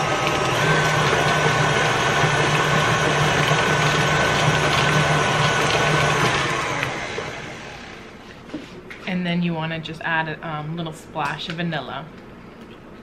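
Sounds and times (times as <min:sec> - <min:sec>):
stand mixer motor running: 0:00.0 - 0:08.2.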